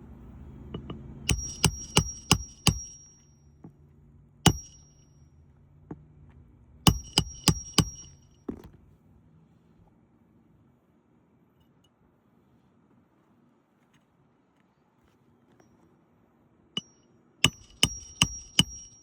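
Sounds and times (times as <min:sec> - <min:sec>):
hammer striking nails: 0:01.3 - 0:03.2, 0:04.5 - 0:05.0, 0:06.9 - 0:08.2, 0:16.8 - 0:19.0.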